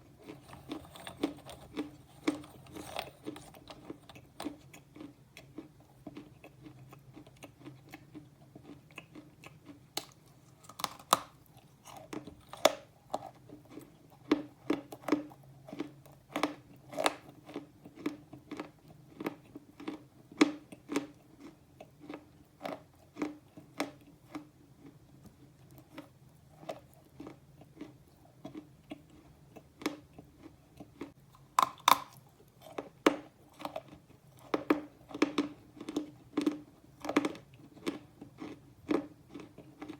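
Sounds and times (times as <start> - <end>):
person chewing slate pencils: 0.2 - 39.9.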